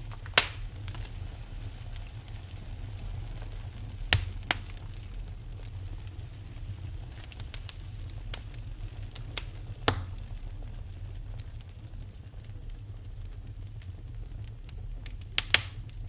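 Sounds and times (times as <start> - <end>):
fire sharp pops: 0.0 - 16.0
low rumble: 0.0 - 16.0
wood fire crackling: 0.0 - 16.0.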